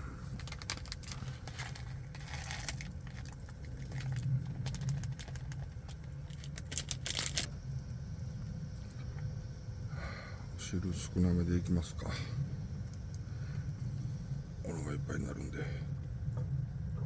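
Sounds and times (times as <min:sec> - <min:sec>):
steady low rumble: 0:00.0 - 0:17.0
crinkling rustles: 0:00.3 - 0:07.5.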